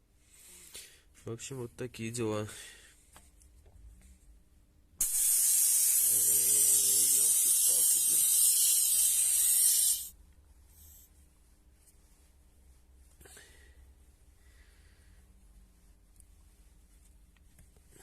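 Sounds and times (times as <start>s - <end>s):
compressed air hissing from hose: 5.0s - 10.2s.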